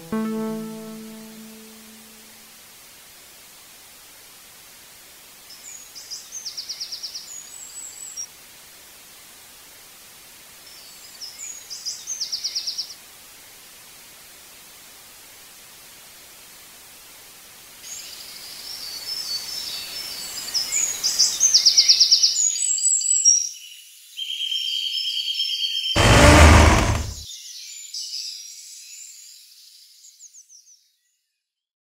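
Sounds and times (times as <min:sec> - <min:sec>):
high-pitched tone: 0:00.0 - 0:02.2.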